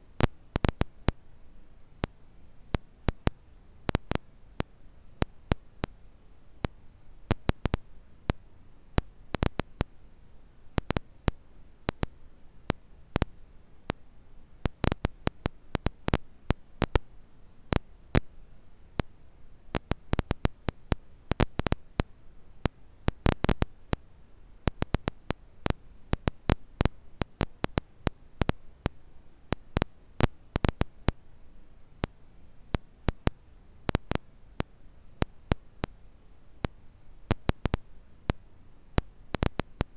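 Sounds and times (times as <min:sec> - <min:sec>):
faint low hiss: 0:00.0 - 0:39.9.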